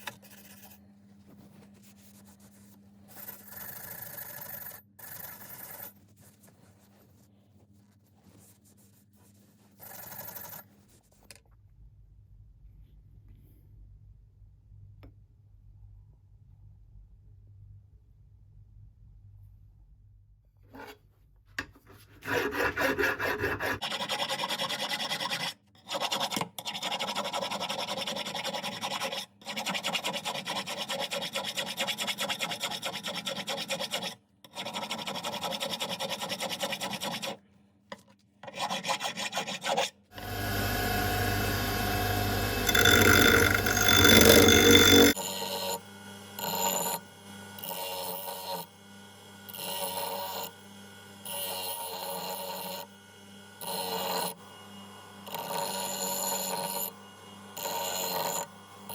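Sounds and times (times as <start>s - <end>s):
hand filing strokes: 21.9s - 37.4s, 38.4s - 45.8s.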